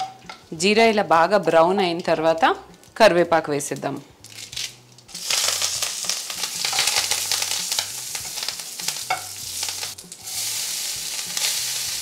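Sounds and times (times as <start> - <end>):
leaves sizzling in hot ghee: 4.2 - 12.0.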